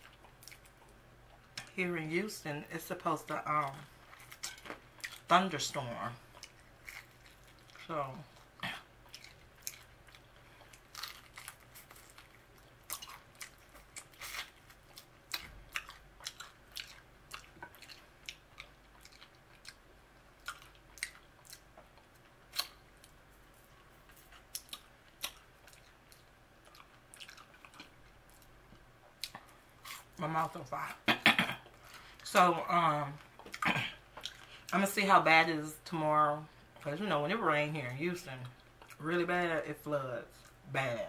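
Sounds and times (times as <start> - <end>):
person crunching fried food: 6.2 - 28.6, 29.2 - 30.2.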